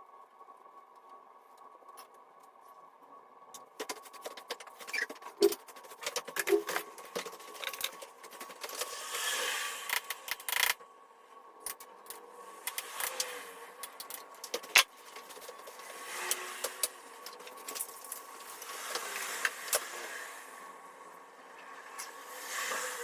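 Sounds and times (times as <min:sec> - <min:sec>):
faint steady hum: 0:00.0 - 0:23.0
handling clicks taps and scrapes: 0:03.6 - 0:09.0.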